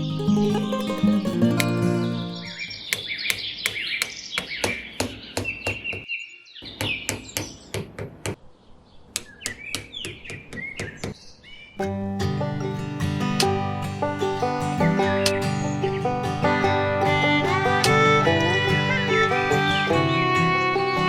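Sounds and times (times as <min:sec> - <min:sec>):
birds chirping: 0:00.0 - 0:21.0
sharp taps: 0:13.3 - 0:13.6, 0:17.1 - 0:20.6.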